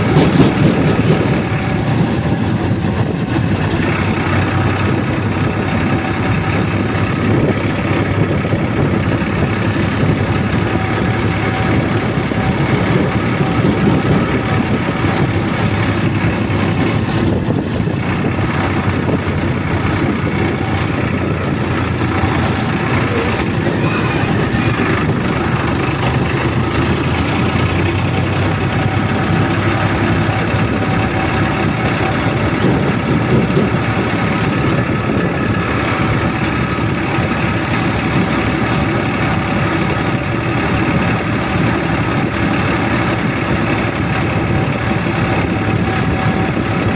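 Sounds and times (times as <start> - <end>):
vehicle engine rumble: 0.0 - 46.9.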